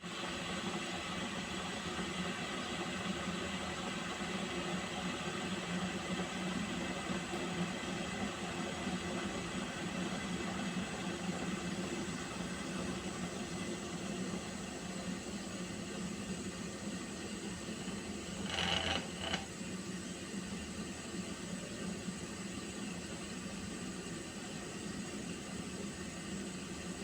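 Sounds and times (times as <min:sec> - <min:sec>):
pot of water heating hiss: 0:00.0 - 0:27.0.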